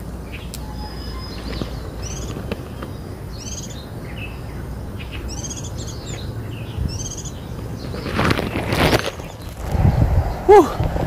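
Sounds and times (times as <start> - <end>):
small bird chirping: 0.0 - 10.7
steady low rumble: 9.3 - 11.0.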